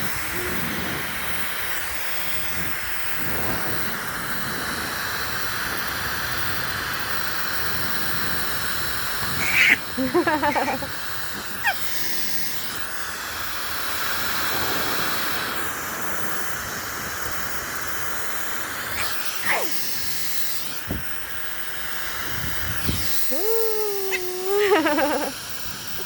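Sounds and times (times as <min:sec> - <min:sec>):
short wavering pitched call: 0:09.4 - 0:10.9, 0:23.3 - 0:25.3.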